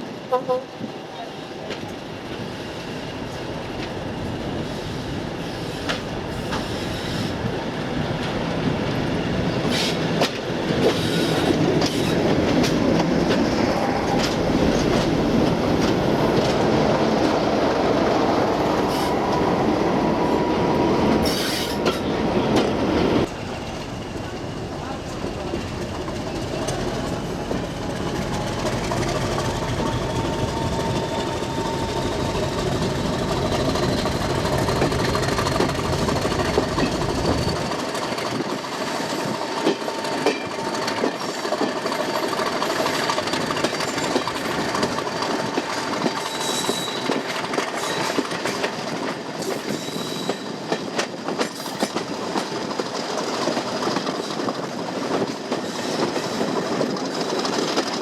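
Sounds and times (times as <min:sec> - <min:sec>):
diesel train running on rails: 0:00.0 - 0:58.0
faint high squeal: 0:29.4 - 0:32.6, 0:46.2 - 0:47.1.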